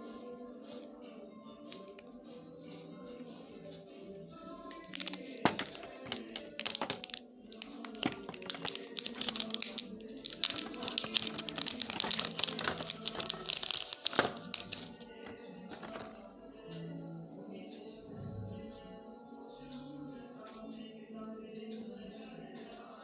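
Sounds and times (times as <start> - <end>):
background music: 0.0 - 23.0
packaging clicking and crinkling: 1.8 - 2.0, 4.7 - 16.2.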